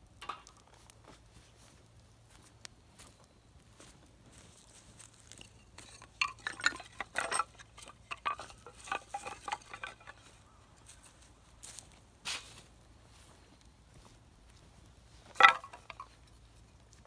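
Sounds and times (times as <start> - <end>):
thin metal pieces clinking: 5.0 - 11.2.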